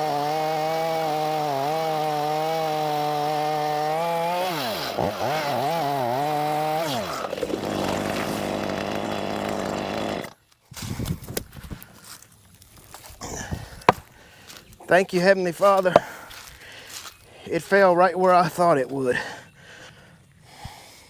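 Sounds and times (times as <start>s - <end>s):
chainsaw cutting wood: 0.0s - 10.4s, 13.6s - 14.2s, 15.6s - 16.2s
tree crashing down: 6.3s - 10.3s.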